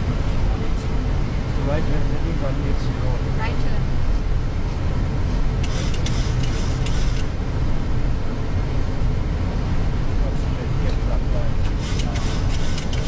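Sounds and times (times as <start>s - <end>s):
airliner engines and airflow: 0.0s - 13.0s.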